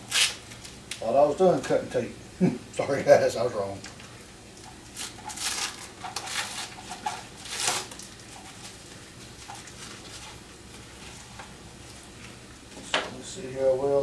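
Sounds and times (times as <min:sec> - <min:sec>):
adhesive tape pulled off roll: 0:00.1 - 0:00.4, 0:07.4 - 0:08.0.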